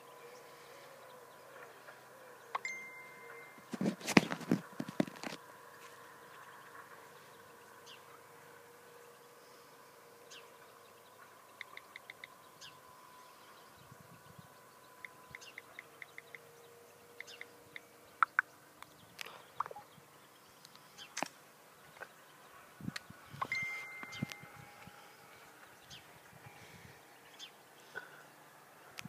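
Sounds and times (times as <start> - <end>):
bird call notes: 0.0 - 3.8, 9.0 - 21.2, 23.3 - 28.3
birds chirping: 0.0 - 29.0
faint steady hum: 0.0 - 29.0.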